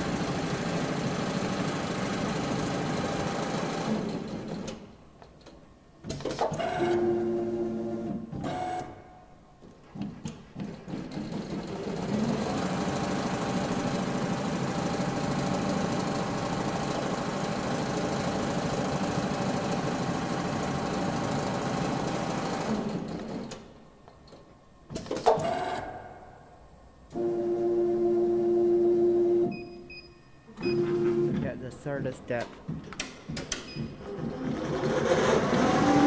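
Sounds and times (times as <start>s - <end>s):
sewing machine stitching: 34.0s - 36.0s.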